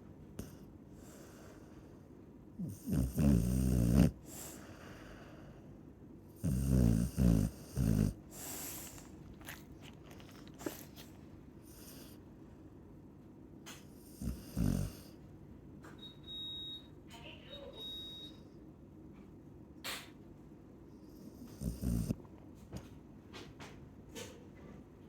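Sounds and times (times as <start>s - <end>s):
dog snoring loudly: 2.6s - 4.6s, 6.4s - 9.6s, 14.0s - 15.2s, 21.3s - 22.2s.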